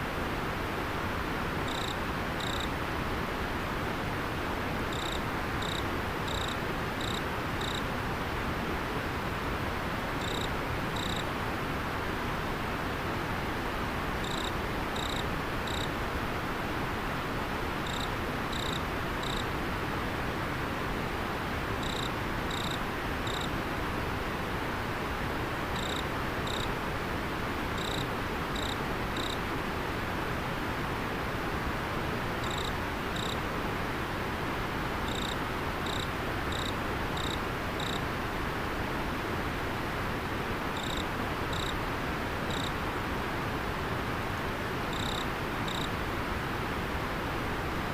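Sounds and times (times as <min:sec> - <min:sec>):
insect chirping: 0:01.7 - 0:02.7, 0:04.9 - 0:07.8, 0:10.2 - 0:11.2, 0:14.2 - 0:15.9, 0:17.8 - 0:19.5, 0:21.8 - 0:23.5, 0:25.8 - 0:26.7, 0:27.8 - 0:29.4, 0:32.4 - 0:33.4, 0:35.0 - 0:38.0, 0:40.8 - 0:41.8, 0:42.5 - 0:42.7, 0:44.9 - 0:45.9.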